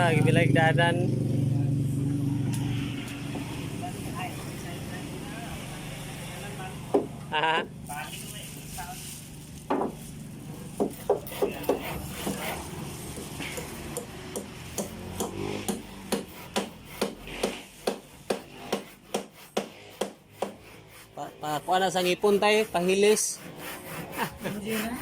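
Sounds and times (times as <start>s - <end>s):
hand tool working wood: 7.9s - 25.0s.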